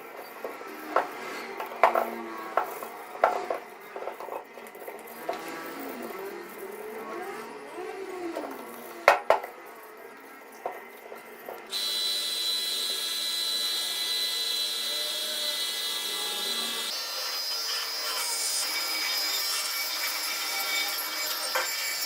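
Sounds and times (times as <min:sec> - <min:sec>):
power tool whining: 0:00.2 - 0:10.6, 0:11.3 - 0:22.0.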